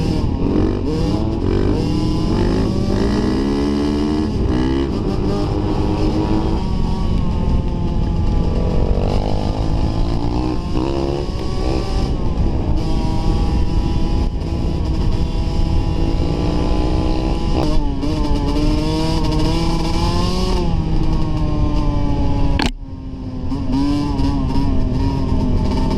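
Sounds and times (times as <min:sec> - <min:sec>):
steady low rumble: 0:00.0 - 0:18.0
dirt bike engine revving: 0:00.0 - 0:22.7, 0:23.4 - 0:25.9.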